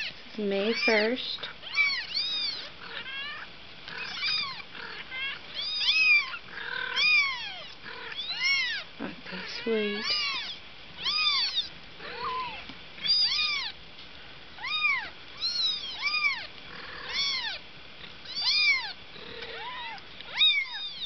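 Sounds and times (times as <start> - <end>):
kittens meowing: 0.0 - 13.8, 14.6 - 17.6, 18.2 - 21.0.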